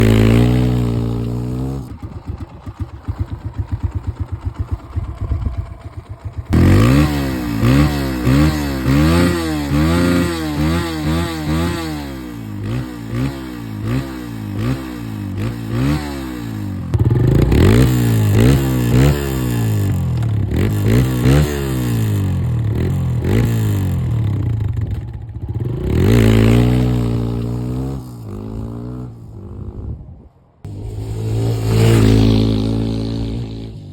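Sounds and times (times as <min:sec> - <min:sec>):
dirt bike engine revving: 0:00.0 - 0:24.5, 0:25.4 - 0:30.0, 0:30.7 - 0:33.9.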